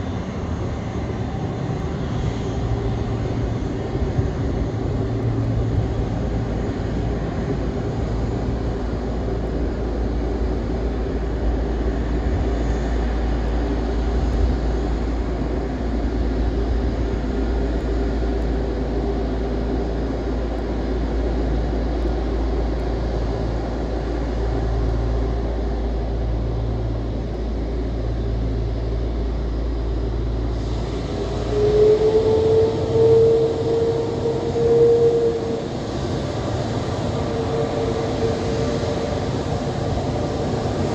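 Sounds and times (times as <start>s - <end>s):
jet engines rumbling and whining: 0.0s - 40.9s.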